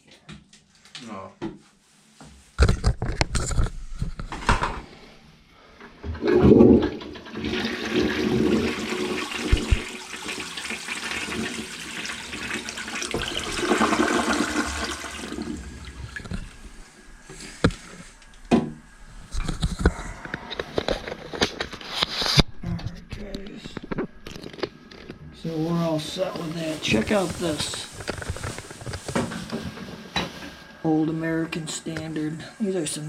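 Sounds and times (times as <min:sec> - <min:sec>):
toilet flush clunk: 0:06.0 - 0:16.4
water rushing from toilet tank: 0:06.0 - 0:16.7.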